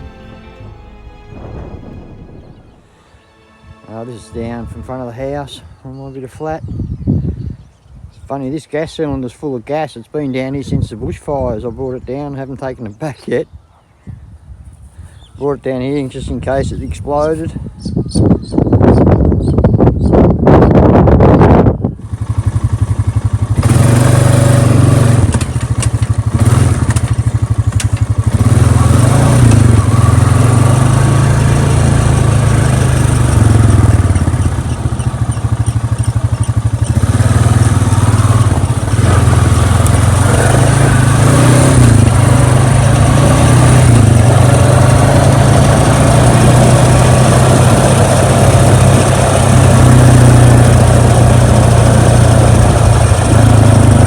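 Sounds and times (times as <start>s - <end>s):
vehicle engine running: 21.9s - 54.0s.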